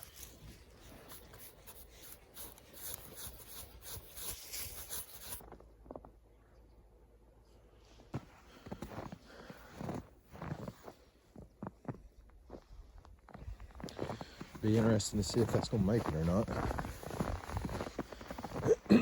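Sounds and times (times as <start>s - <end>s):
snow brushed and scraped off: 0.0s - 5.6s, 8.1s - 11.2s, 13.3s - 18.9s
faint crunches and knocks: 0.0s - 6.2s, 8.1s - 18.9s.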